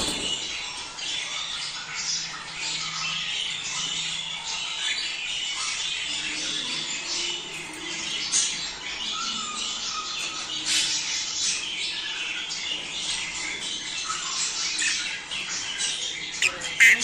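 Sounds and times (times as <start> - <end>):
budgerigars chattering: 0.5 - 17.0
budgerigar squawks: 16.4 - 17.0.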